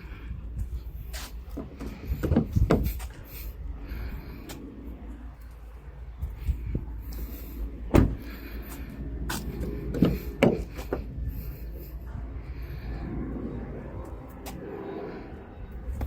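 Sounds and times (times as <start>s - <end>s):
steady low rumble: 0.0s - 16.0s
sharp knocks and clunks: 1.5s - 3.0s, 7.9s - 8.3s, 9.9s - 11.1s.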